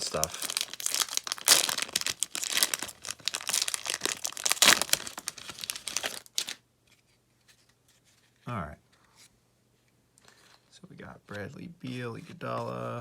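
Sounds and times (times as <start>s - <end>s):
wrapper crinkling and tearing: 0.0s - 6.6s.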